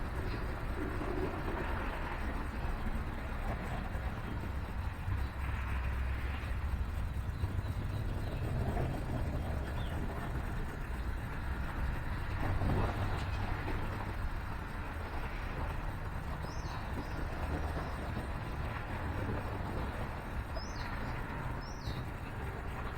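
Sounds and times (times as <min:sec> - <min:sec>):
distant city traffic rumble: 0:00.0 - 0:22.9.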